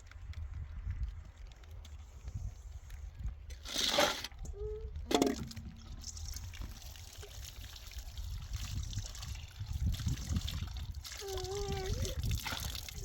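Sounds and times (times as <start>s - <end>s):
water trickling and pouring: 5.1s - 13.0s.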